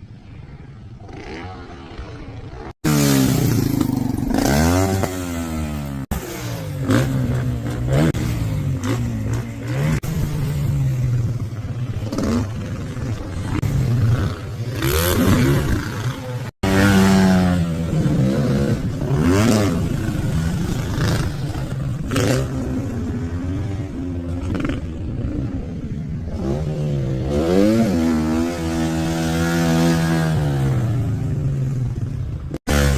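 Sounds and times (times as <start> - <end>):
dirt bike engine revving: 1.0 - 32.9.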